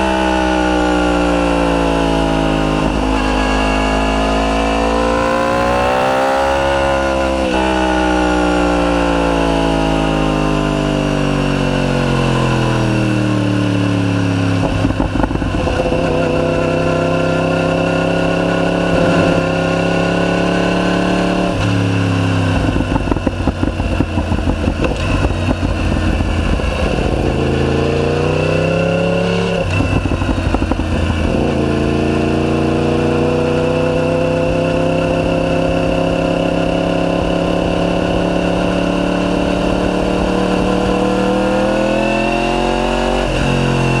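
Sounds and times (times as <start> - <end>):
motorcycle engine accelerating: 0.0 - 44.0
exhaust crackling: 12.0 - 44.0.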